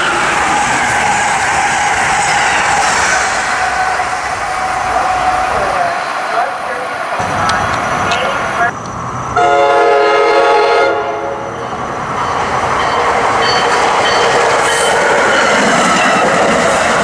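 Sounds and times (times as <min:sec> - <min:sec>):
train wheels on rails: 0:00.0 - 0:17.0
train horn blast: 0:09.4 - 0:11.5.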